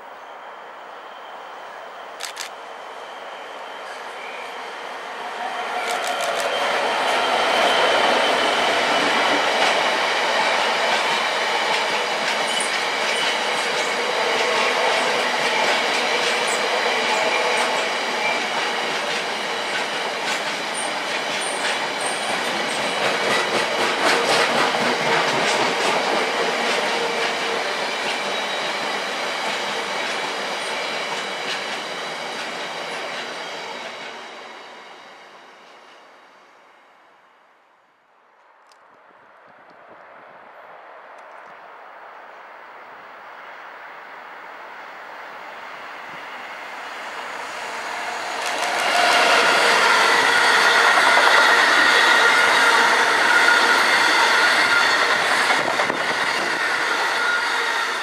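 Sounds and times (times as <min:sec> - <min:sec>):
high wheel squeal: 0:00.0 - 0:09.1.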